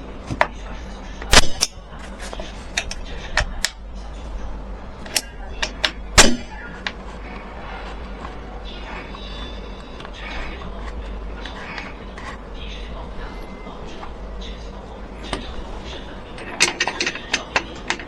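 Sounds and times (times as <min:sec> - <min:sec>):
steady low hum: 0:00.0 - 0:18.0
sharp clicks and knocks: 0:16.4 - 0:18.0.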